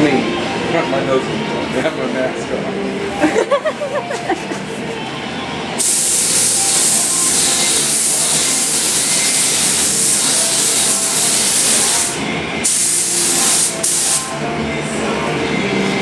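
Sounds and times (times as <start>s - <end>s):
spray gun hissing: 5.8s - 14.3s.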